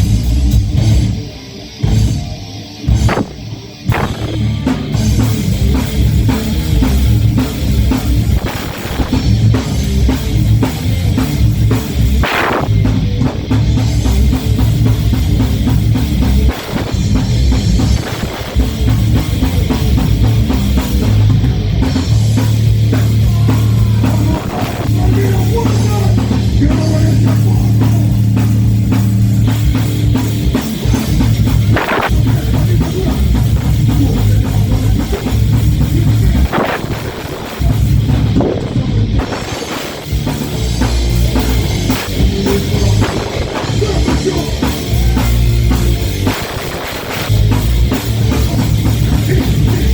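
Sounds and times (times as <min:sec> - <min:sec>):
heavy rock band playing: 0:00.0 - 0:49.9
cymbal crash: 0:23.0 - 0:32.4.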